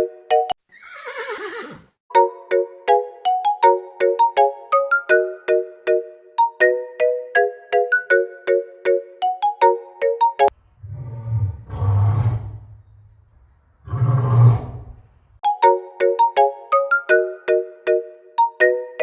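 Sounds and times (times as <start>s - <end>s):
plinking ringtone melody: 2.1s - 10.5s, 15.4s - 19.0s
big cat roaring: 10.8s - 12.8s, 13.8s - 15.0s.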